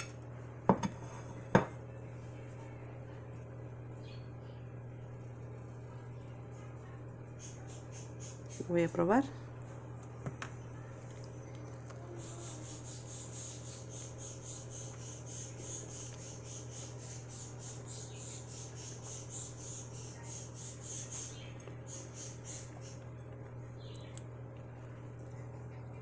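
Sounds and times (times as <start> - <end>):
person chewing food: 10.9 - 12.6, 21.0 - 25.8.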